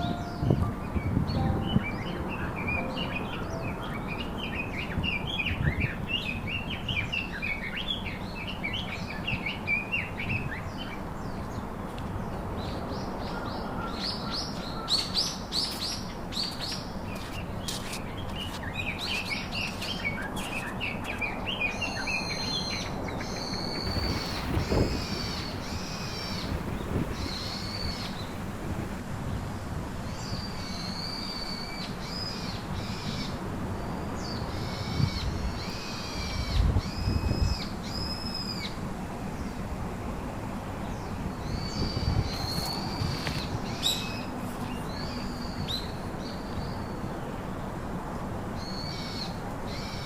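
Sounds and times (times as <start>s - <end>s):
low outdoor background noise: 0.0s - 50.0s
small birds chirping: 23.9s - 29.0s.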